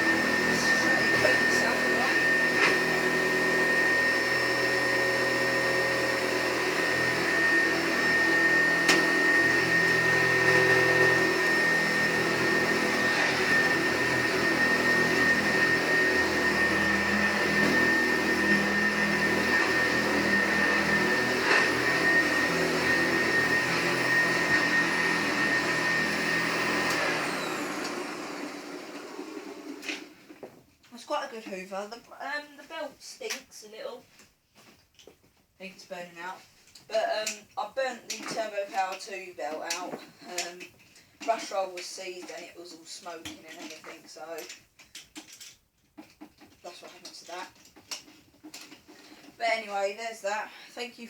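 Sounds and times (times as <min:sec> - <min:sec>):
vacuum cleaner motor whine: 0:00.0 - 0:30.5, 0:46.7 - 0:51.0.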